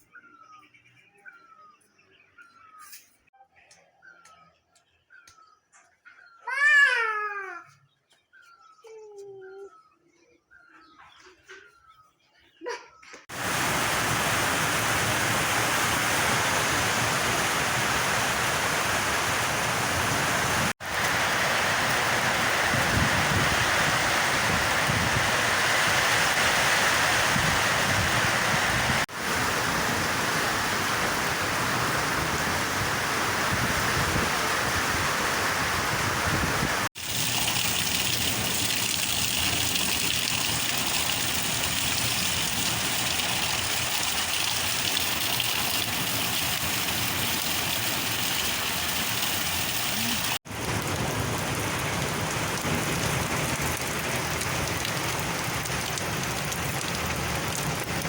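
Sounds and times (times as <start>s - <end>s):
heavy rain falling: 13.3s - 58.0s.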